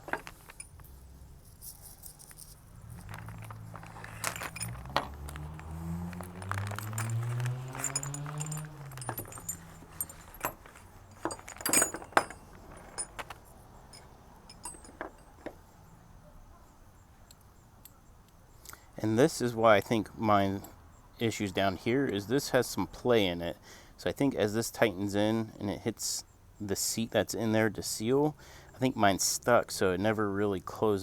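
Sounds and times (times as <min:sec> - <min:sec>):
metal parts clicking and jangling: 0:00.0 - 0:15.8.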